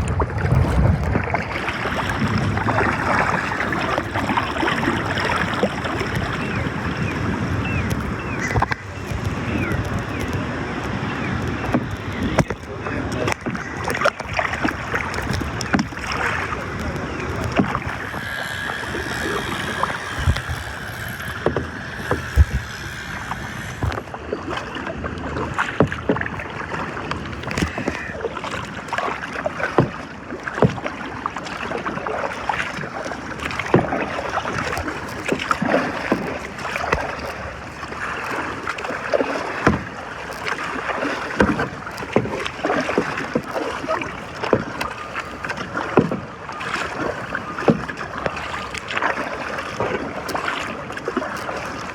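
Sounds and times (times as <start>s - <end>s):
paddle splashes: 0.0s - 51.9s
steady wash of water: 0.0s - 51.9s
water slapping against hull: 0.0s - 51.9s.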